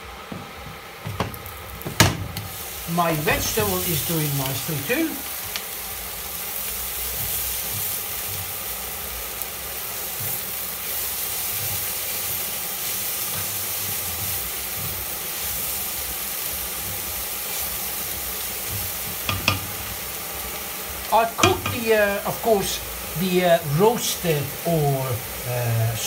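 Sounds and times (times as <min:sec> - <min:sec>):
vegetables sizzling in a frying pan: 0:00.0 - 0:26.0
spatula stirring: 0:10.1 - 0:20.0.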